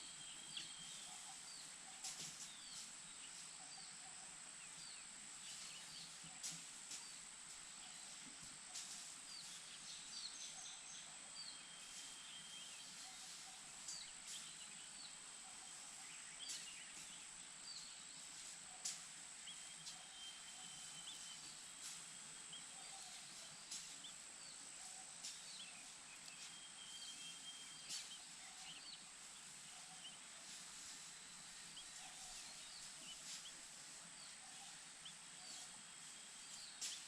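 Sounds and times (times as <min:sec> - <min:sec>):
bird chirps: 0:08.8 - 0:37.0.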